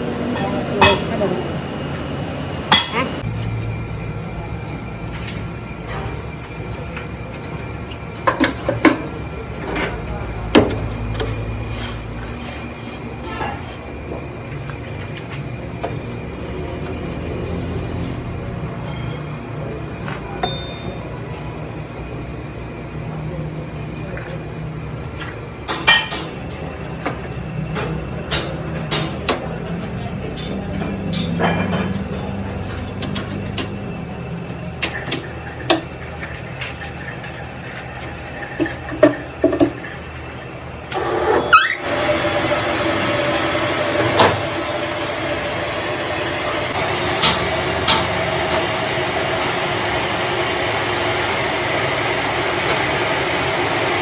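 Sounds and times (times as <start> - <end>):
steady machine noise: 32.1 - 54.0.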